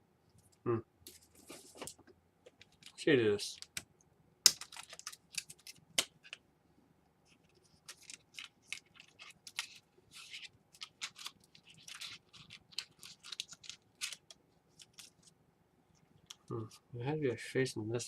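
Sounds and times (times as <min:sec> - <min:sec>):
plastic laptop parts clicking: 0:03.6 - 0:06.4.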